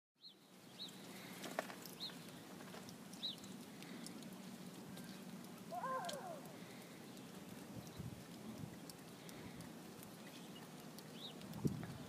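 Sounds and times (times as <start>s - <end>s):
small bird chirping: 3.2s - 3.6s, 10.1s - 11.4s
short rising and falling cry: 5.7s - 6.6s.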